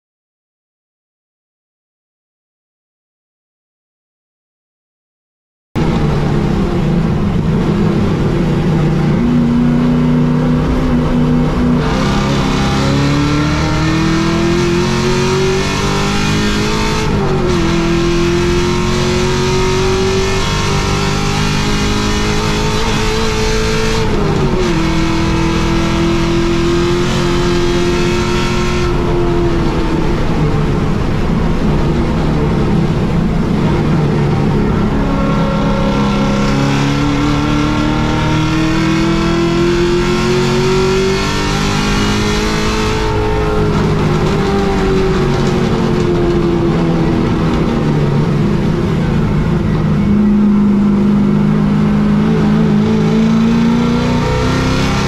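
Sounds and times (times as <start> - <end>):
race car engine at full throttle: 5.8 - 55.0.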